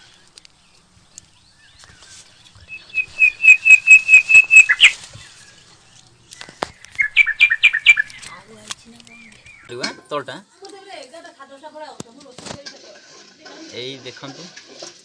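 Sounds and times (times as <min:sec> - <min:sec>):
bird calling short notes: 0:02.7 - 0:05.0, 0:06.8 - 0:08.4.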